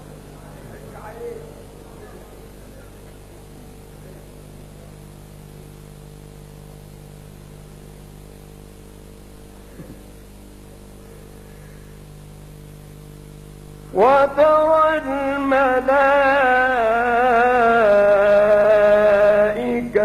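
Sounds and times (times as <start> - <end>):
background hiss: 0.0 - 20.0
electrical mains hum: 0.0 - 20.0.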